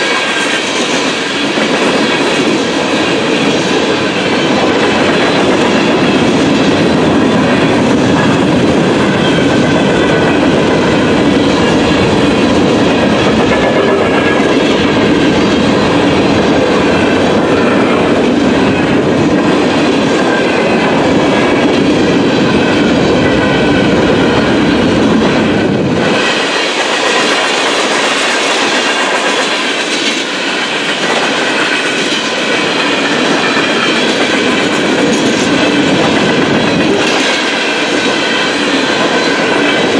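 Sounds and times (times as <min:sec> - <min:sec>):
freight train rolling past: 0:00.0 - 0:39.9
train wheels on rails: 0:00.0 - 0:39.9.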